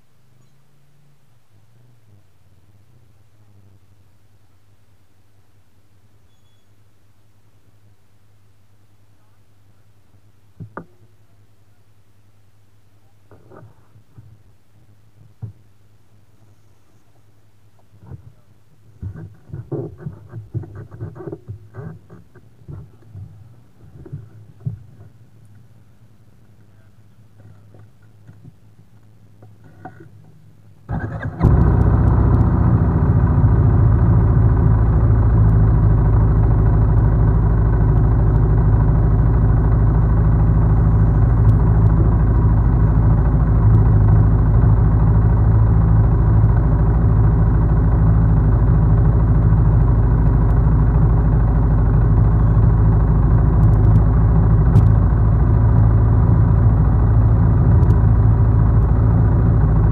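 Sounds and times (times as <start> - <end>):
car engine starting and running: 30.8 - 59.9.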